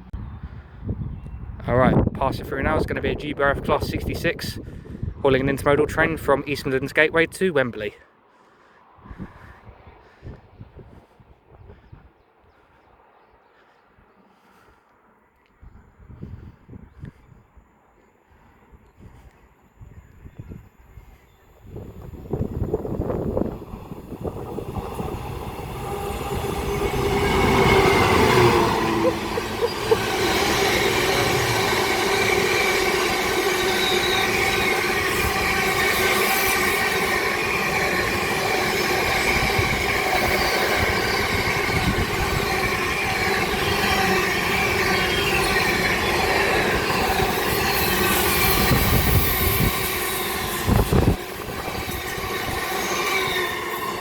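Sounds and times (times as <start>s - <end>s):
diesel locomotive at full power: 0.0s - 13.0s, 13.6s - 54.0s
freight wagons rolling past: 23.4s - 54.0s.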